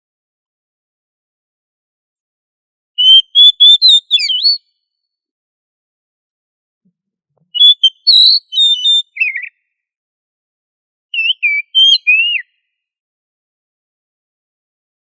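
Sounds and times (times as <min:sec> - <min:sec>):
bird whistled song: 0:03.0 - 0:04.8, 0:07.4 - 0:09.8, 0:11.2 - 0:12.8.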